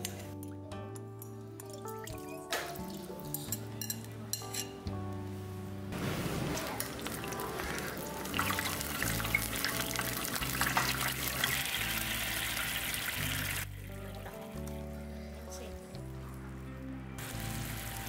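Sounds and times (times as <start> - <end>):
background music: 0.0 - 18.0
food sizzling in hot oil: 6.0 - 13.7, 17.2 - 18.0.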